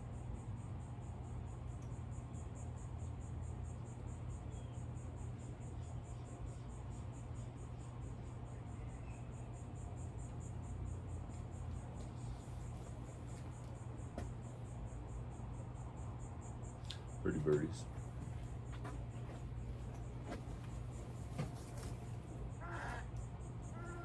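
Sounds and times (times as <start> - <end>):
steady low hum: 0.0 - 24.0
insect pulsing trill: 0.1 - 13.9, 20.0 - 24.0.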